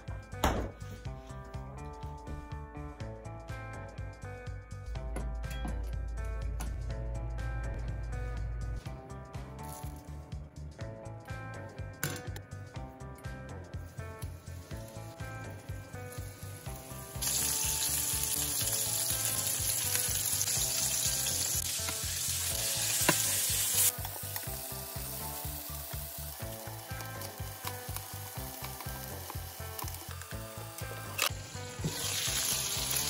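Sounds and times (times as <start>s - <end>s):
background music with steady beat: 0.0s - 33.0s
burger patties sizzling in oil: 16.2s - 33.0s.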